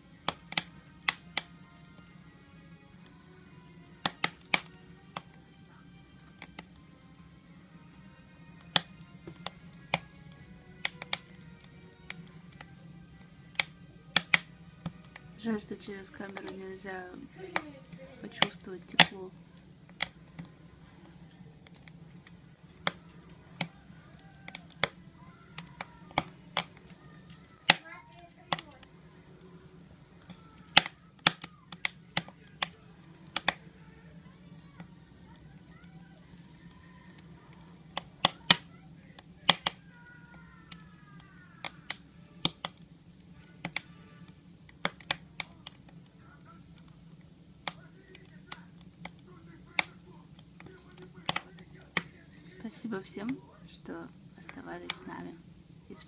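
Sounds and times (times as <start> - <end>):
faint low hum: 0.0 - 56.0
firewood crackling and popping: 0.0 - 56.0.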